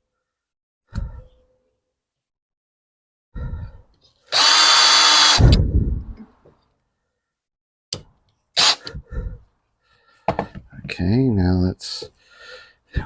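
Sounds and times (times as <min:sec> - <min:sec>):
drill click: 0:04.3 - 0:05.4, 0:08.6 - 0:08.8
power drill driving a screw: 0:04.3 - 0:05.5, 0:08.6 - 0:08.8.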